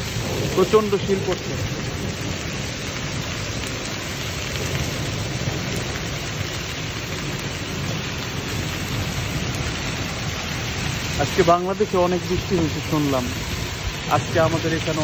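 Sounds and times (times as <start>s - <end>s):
heavy rain and hail: 0.0s - 15.0s.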